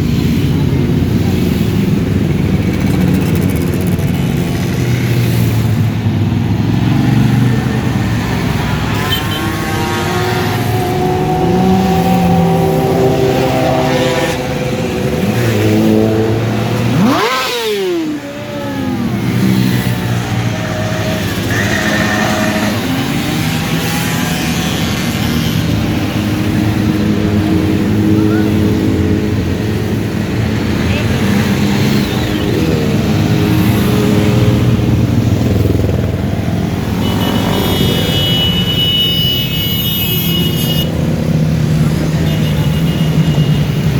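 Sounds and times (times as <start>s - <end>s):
motorcycle engines running: 0.0s - 43.9s
motorcycle engine revving hard: 1.9s - 29.6s.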